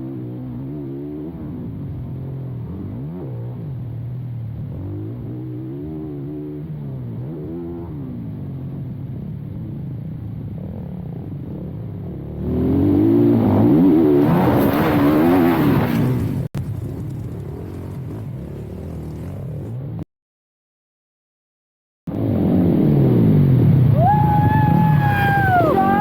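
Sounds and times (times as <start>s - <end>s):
dirt bike engine revving: 12.2s - 20.0s.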